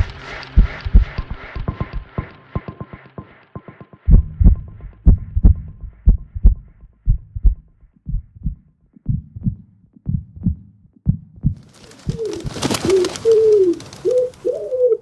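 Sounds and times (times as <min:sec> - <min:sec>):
deep dull thumps: 0:04.1 - 0:12.6.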